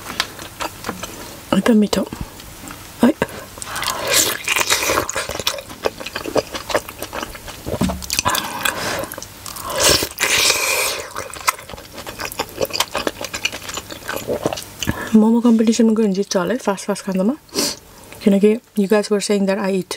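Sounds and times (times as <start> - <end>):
chewing with wet mouth clicks: 0.0 - 1.2, 3.6 - 15.1
slurping: 3.6 - 15.2.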